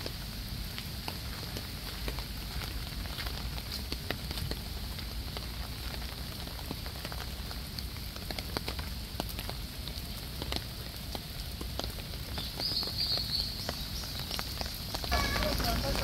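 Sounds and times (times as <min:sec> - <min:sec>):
small drips and splashes: 0:00.0 - 0:16.0
water falling and splashing: 0:00.0 - 0:16.0.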